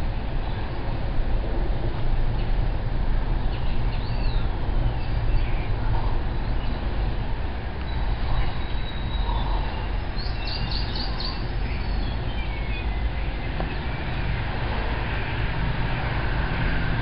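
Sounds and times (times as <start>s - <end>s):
low outdoor rumble: 0.0s - 17.0s
faint bird chirps: 7.8s - 14.0s.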